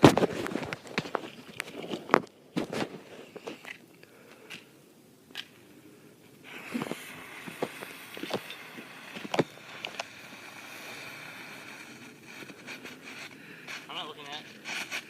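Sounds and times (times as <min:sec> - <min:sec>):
firework sparks hissing: 0:05.5 - 0:15.0
firework crackling pops: 0:06.4 - 0:15.0.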